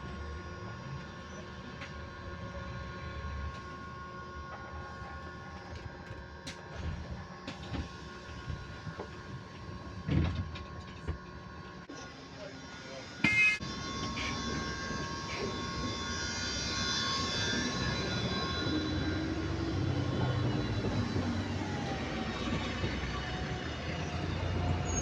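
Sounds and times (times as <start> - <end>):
steady electric whine tones: 0.0 - 25.0
drive and road rumble: 18.0 - 25.0.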